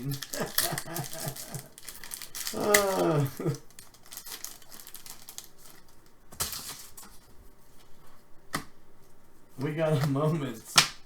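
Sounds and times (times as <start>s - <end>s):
wrappers crinkling: 0.0s - 7.2s
cards being handled: 0.0s - 8.7s.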